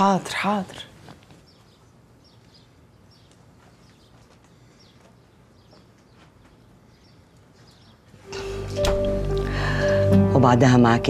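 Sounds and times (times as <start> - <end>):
small bird chirping: 1.4 - 8.2.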